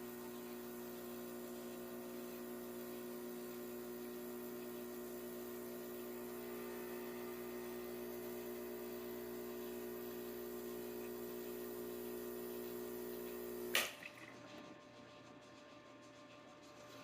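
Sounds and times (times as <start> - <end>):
vibratory pump buzzing: 0.0 - 14.7
valve venting hiss: 7.2 - 13.8.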